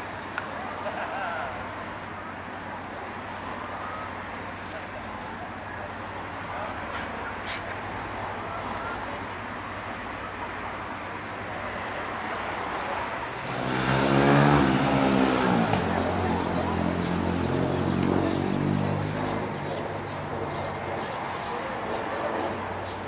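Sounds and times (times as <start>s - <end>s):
vehicle engine passing: 12.9s - 23.0s.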